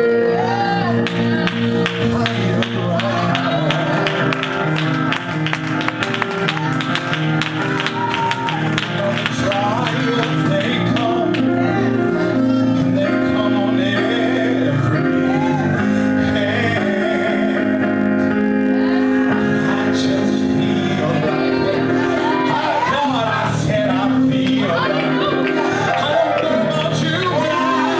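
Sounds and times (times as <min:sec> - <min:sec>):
singers with band: 0:18.7 - 0:27.9.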